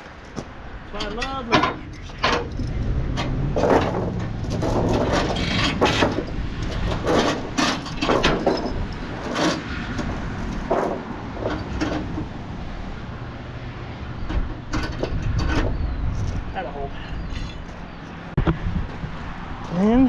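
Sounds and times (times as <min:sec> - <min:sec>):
low engine hum: 0:00.0 - 0:20.0
chains clinking and rattling: 0:01.5 - 0:12.0.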